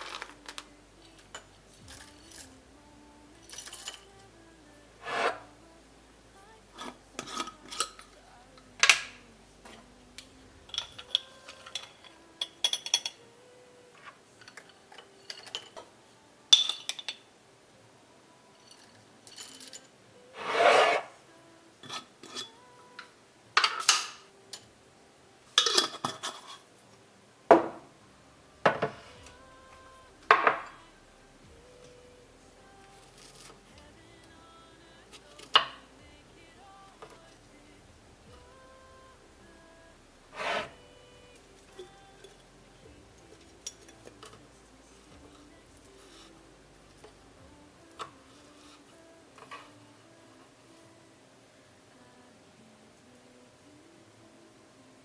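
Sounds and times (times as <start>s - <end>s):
scraping strokes: 5.0s - 5.6s, 20.4s - 21.2s, 40.3s - 40.8s
dishes and utensils clicking: 10.7s - 13.2s, 14.0s - 15.9s, 16.6s - 17.2s, 23.6s - 24.6s, 25.6s - 26.6s.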